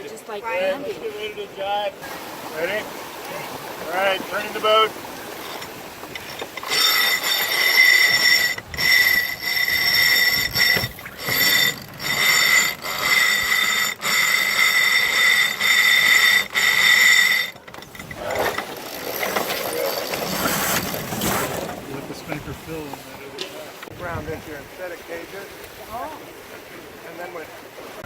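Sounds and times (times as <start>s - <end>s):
winch ratcheting: 5.3s - 22.4s.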